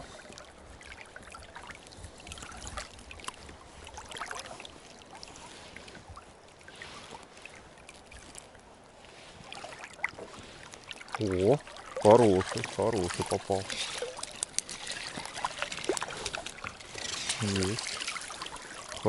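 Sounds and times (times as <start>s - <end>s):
light rustling: 12.0s - 19.0s.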